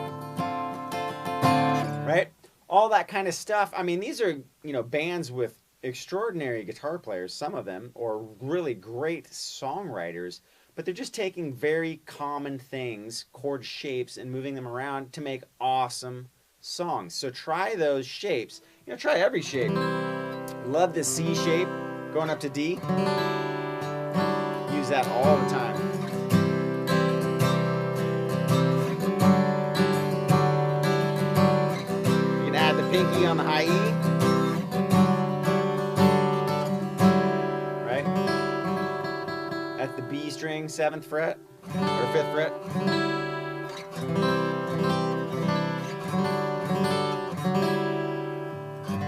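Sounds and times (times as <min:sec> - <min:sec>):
acoustic guitar strumming chords: 0:00.0 - 0:03.1, 0:18.6 - 0:49.0.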